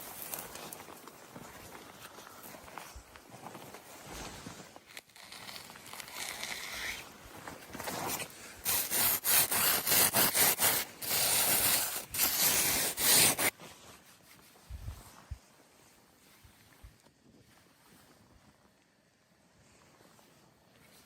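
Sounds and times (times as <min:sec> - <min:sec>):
hand saw cutting wood: 0:07.9 - 0:13.5.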